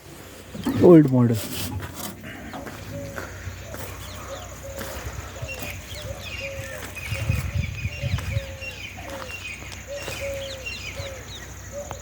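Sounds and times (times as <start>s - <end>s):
high bird chirps: 2.6s - 12.0s.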